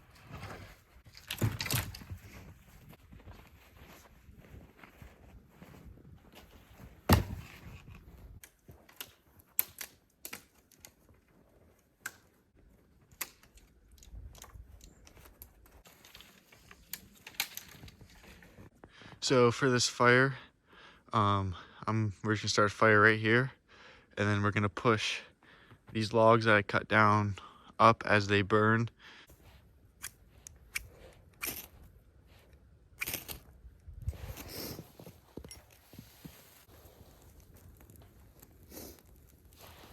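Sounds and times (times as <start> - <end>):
heavy thud of firewood: 7.0 - 7.6
wood snapping and clicking: 8.4 - 11.0, 13.1 - 18.2.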